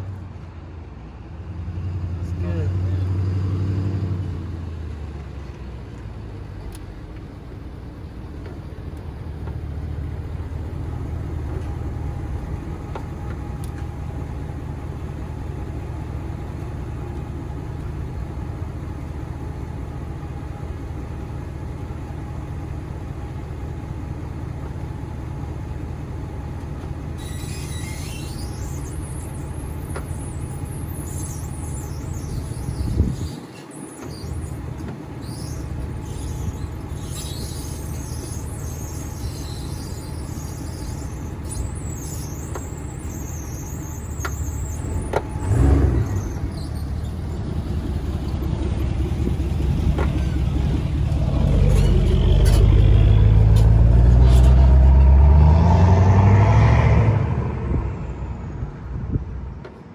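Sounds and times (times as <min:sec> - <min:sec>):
vehicle engine idling: 0:04.1 - 0:55.7
high squeaky chirps: 0:27.2 - 0:48.4.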